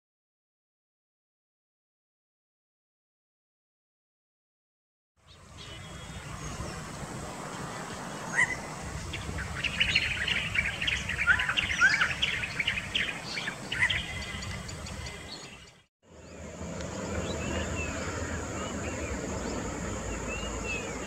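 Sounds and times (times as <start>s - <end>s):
small birds chirping: 5.2s - 21.0s.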